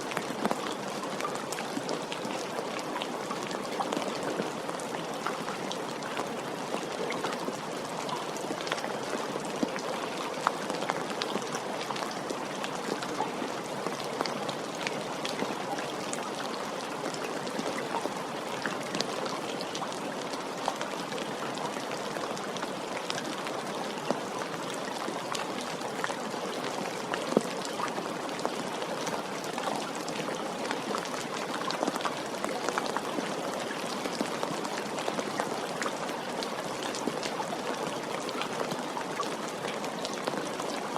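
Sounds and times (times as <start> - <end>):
rain pattering on surface: 0.0 - 40.9.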